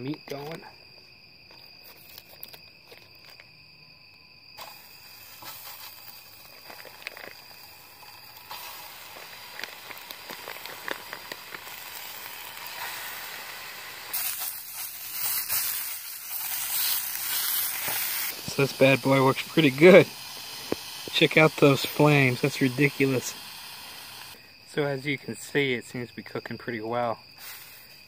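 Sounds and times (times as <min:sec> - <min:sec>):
crickets trilling: 0:00.0 - 0:28.0
sausages sizzling in a frying pan: 0:04.5 - 0:24.4, 0:27.4 - 0:27.9.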